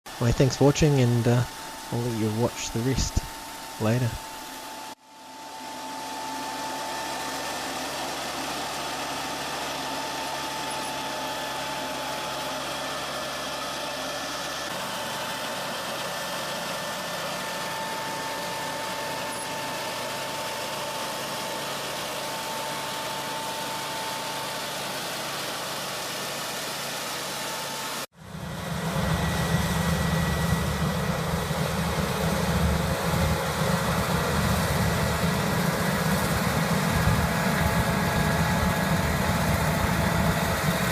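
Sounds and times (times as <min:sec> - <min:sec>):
low engine rumble: 0:00.1 - 0:04.6, 0:28.2 - 0:40.9
machinery faint high hum: 0:00.1 - 0:27.4, 0:28.0 - 0:40.9.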